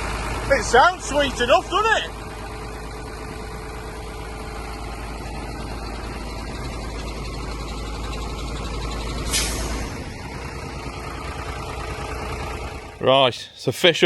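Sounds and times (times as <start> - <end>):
diesel truck engine idling: 0.0 - 13.2
short burst of hiss: 9.3 - 9.9.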